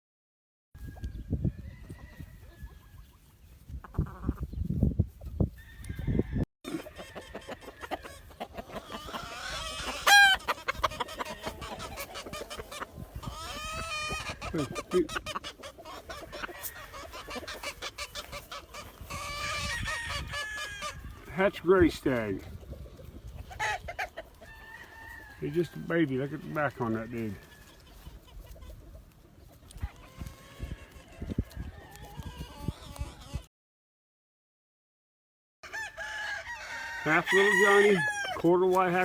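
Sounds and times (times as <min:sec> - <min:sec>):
roosters clucking: 0:00.8 - 0:33.5, 0:35.6 - 0:39.0
rooster crowing: 0:05.6 - 0:08.2, 0:16.2 - 0:17.7, 0:19.3 - 0:21.0, 0:24.4 - 0:27.7, 0:35.6 - 0:38.4.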